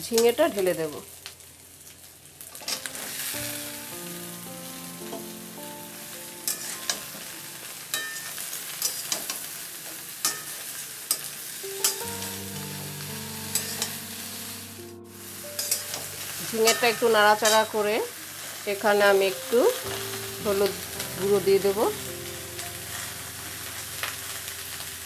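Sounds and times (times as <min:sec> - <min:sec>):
vegetables sizzling in hot oil: 0:00.0 - 0:25.0
metal spatula scraping pan: 0:06.5 - 0:07.0, 0:15.6 - 0:17.9.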